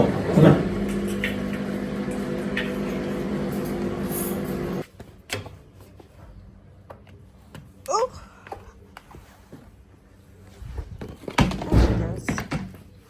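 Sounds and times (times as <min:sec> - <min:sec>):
appliance motor humming: 0:00.0 - 0:04.8.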